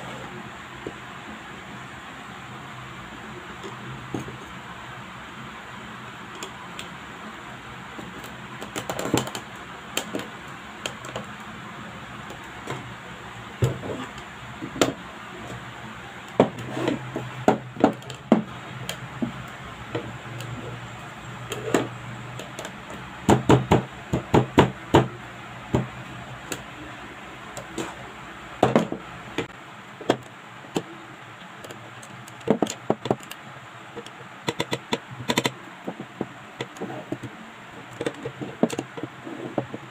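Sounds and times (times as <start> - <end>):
wooden pieces knocking and clicking: 31.6 - 33.4, 34.0 - 39.9.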